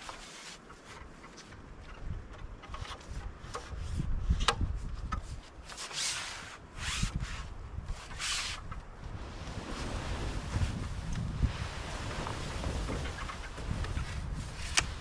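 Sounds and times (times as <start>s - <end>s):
snow shovel scraping snow: 5.7s - 14.8s.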